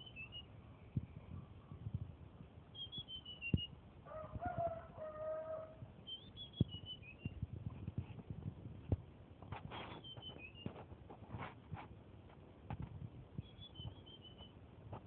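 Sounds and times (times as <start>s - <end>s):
songbird whistling high notes: 0.0s - 0.5s, 2.8s - 3.7s, 6.1s - 7.4s, 9.8s - 10.7s, 13.4s - 14.5s.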